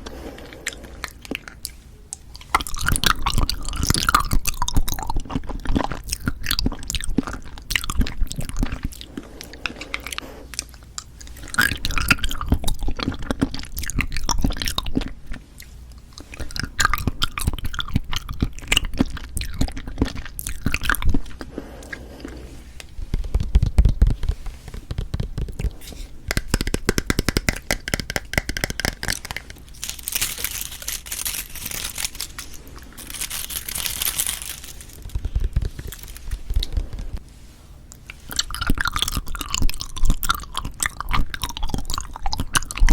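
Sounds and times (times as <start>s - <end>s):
clicky mouth sounds: 0.0s - 29.6s
wet chewing of jelly: 0.0s - 37.2s, 37.8s - 42.9s.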